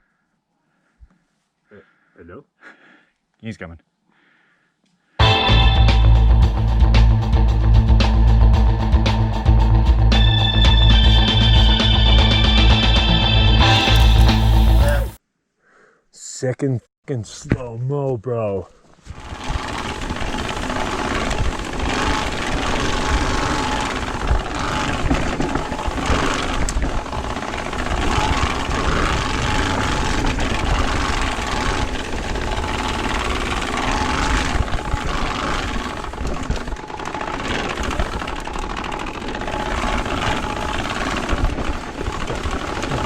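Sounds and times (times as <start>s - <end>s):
tyre and trail noise: 18.8s - 43.0s
card rattling against bicycle spokes: 19.1s - 43.0s.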